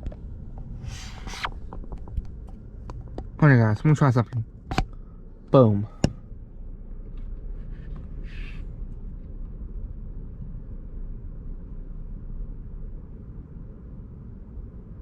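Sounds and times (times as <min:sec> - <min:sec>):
freight train rumble: 0:00.0 - 0:15.0
brief hiss: 0:00.8 - 0:01.5.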